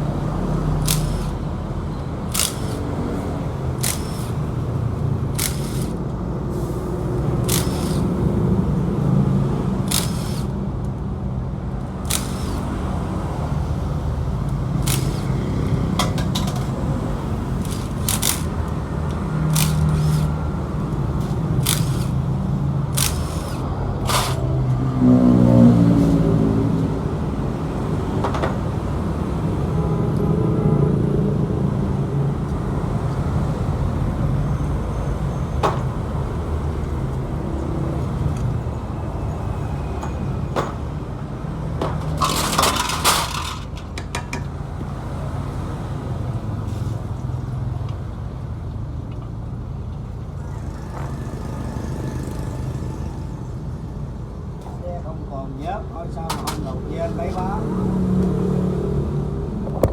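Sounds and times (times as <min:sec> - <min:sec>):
sharp engine clicking: 0:00.0 - 0:06.3, 0:07.0 - 0:08.8, 0:09.7 - 0:11.1, 0:11.8 - 0:24.8.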